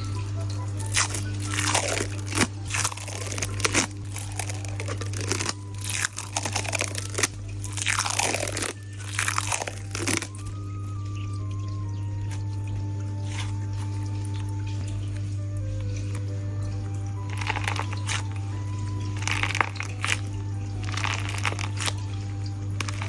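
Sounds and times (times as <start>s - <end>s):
low hum: 0.0s - 23.0s
stress ball squishing: 0.9s - 10.5s, 13.2s - 15.3s, 17.1s - 22.1s, 22.7s - 23.0s.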